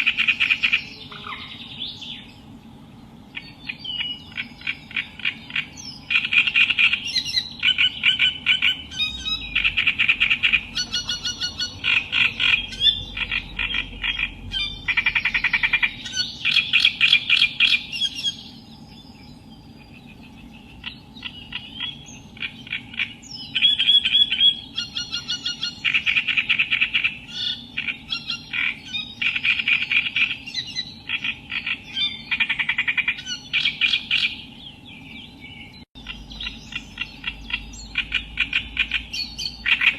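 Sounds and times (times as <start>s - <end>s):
warbler singing harsh chattering: 0.0s - 39.9s.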